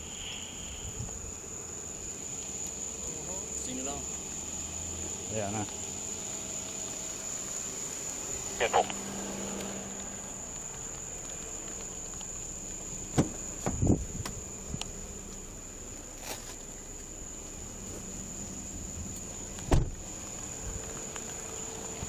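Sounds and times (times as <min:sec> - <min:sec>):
high-pitched insect chorus: 0:00.0 - 0:22.0
sharp knocks and thumps: 0:13.1 - 0:14.4, 0:19.6 - 0:20.0.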